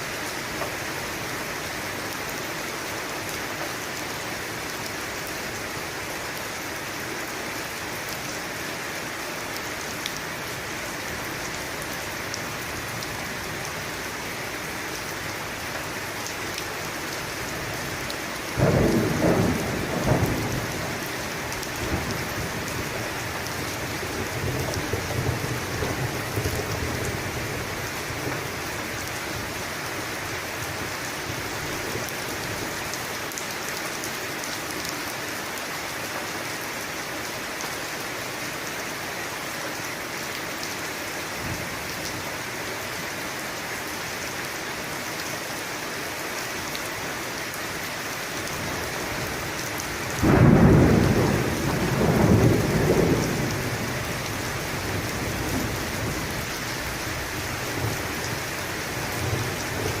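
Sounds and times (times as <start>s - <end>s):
steady rain: 0.0s - 60.0s
thunder clap rumbling: 18.6s - 21.1s, 50.2s - 53.9s.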